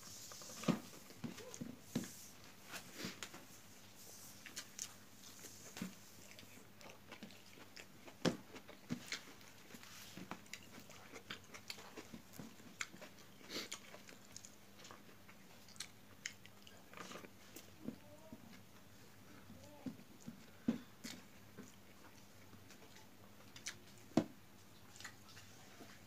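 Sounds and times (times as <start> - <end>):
chewing and lip-smacking: 4.4 - 17.7, 21.0 - 24.1, 24.7 - 26.0.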